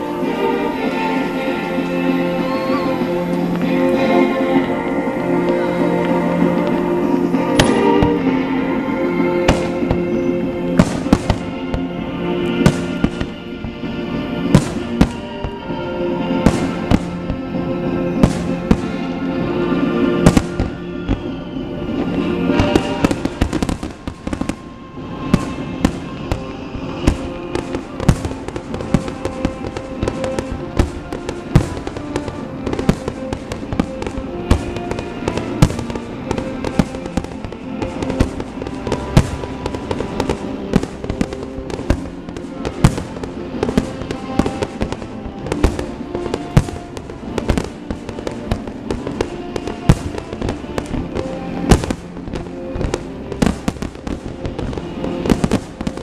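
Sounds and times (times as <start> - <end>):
fireworks bursting: 0.0 - 56.0
music with sustained tones: 0.0 - 56.0.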